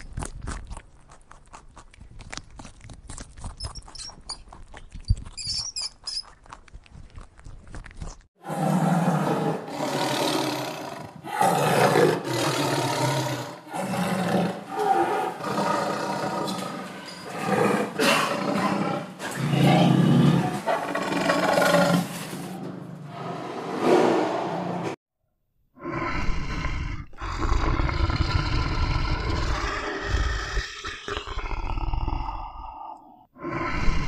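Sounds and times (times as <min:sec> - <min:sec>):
rat chewing food: 0:00.0 - 0:08.4
tiger roaring and growling: 0:08.4 - 0:25.0, 0:25.8 - 0:34.0.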